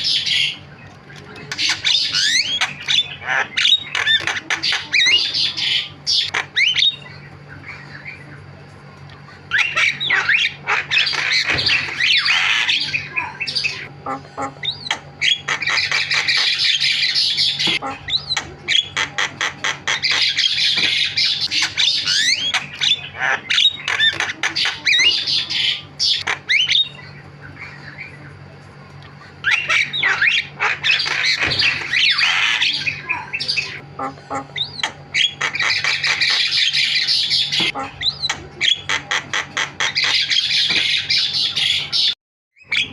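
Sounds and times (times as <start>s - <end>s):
myna chattering: 37.5s - 40.2s.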